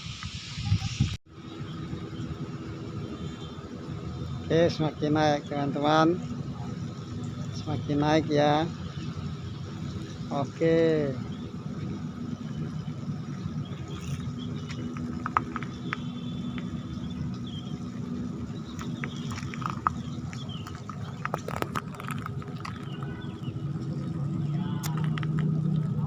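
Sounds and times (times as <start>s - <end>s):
low machinery hum: 1.3s - 26.0s
sharp clicks and knocks: 14.0s - 16.8s.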